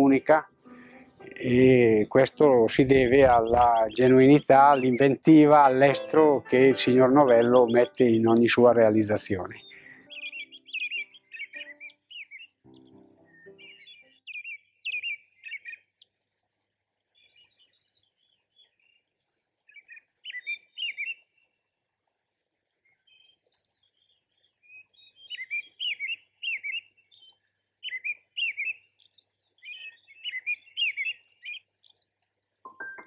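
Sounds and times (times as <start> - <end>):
songbird warbling: 0.0 - 15.9, 19.7 - 21.3, 24.6 - 32.0.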